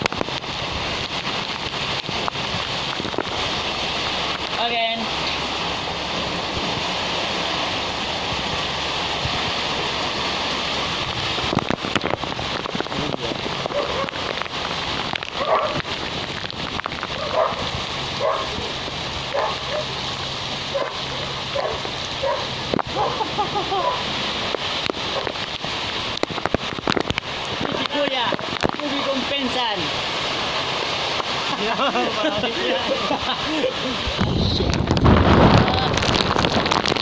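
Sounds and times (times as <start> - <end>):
heavy rain pouring: 0.0 - 37.0
dog barking: 13.7 - 14.2, 15.4 - 15.8, 17.2 - 17.6, 18.2 - 18.6, 19.3 - 19.9, 20.7 - 24.0.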